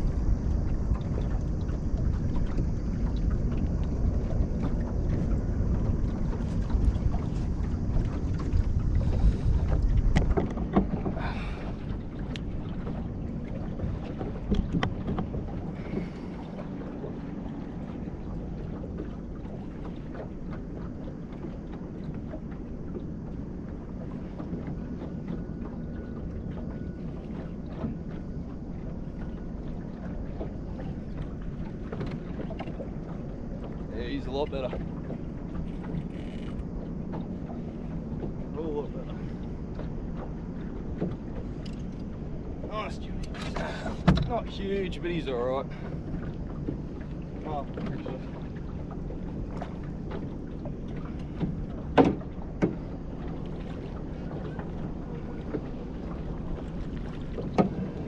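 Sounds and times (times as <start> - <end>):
wind buffeting microphone: 0.0 - 22.1
water noise around boat: 0.0 - 58.0.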